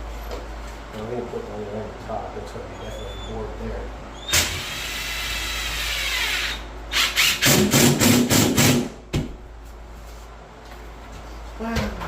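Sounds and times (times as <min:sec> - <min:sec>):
power drill driving a screw: 0:04.3 - 0:08.8.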